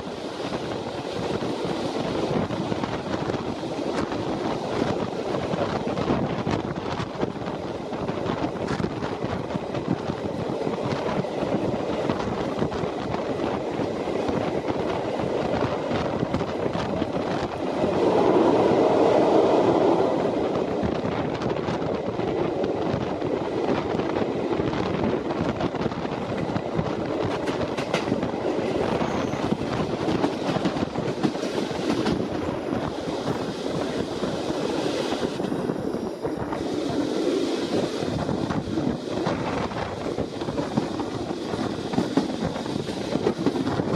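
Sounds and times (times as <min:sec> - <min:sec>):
train cars rumbling: 0:00.0 - 0:43.9.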